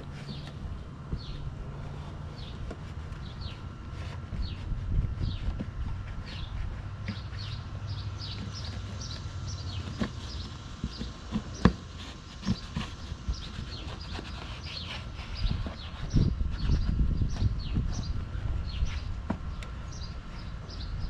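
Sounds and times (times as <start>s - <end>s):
low handling thumps: 0.0s - 14.2s
birds chirping: 0.0s - 21.0s.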